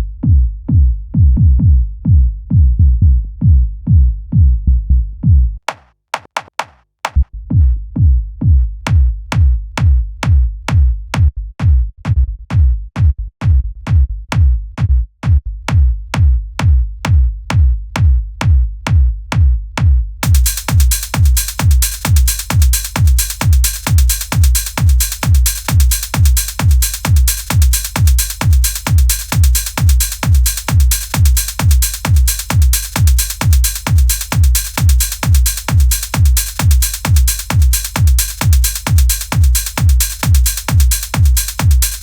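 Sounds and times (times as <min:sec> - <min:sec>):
drum machine kick beat: 0:00.0 - 0:42.0
electronic dance music: 0:20.2 - 0:42.0
sharp clicking hits: 0:20.2 - 0:42.0.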